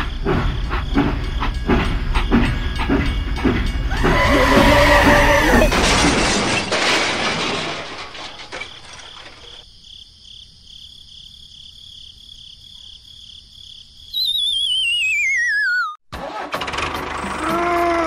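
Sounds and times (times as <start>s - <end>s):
high pulsing chirp: 14.1s - 16.0s
wavering whistle sliding downward: 14.1s - 16.0s.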